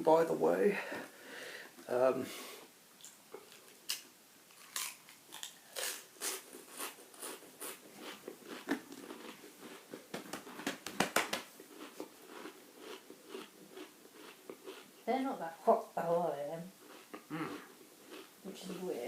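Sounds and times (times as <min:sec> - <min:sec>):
crisps crunching while chewing: 0:03.0 - 0:10.0, 0:11.6 - 0:15.0, 0:16.8 - 0:18.9.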